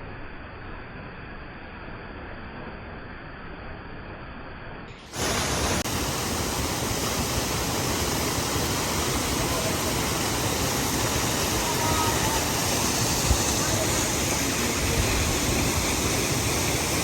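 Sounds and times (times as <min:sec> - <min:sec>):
waterfall rushing water: 0:04.9 - 0:17.0.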